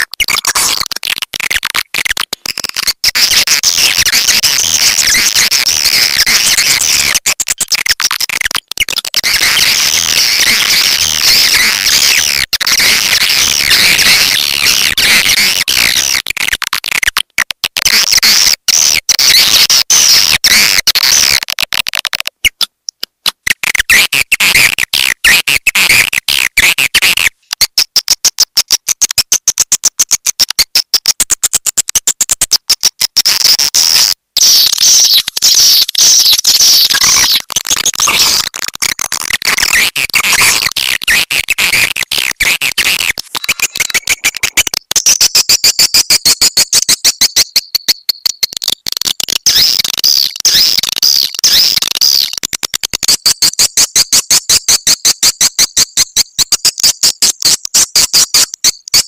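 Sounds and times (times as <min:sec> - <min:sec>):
swiftlets twittering: 0:34.4 - 0:38.6, 0:39.2 - 0:45.2.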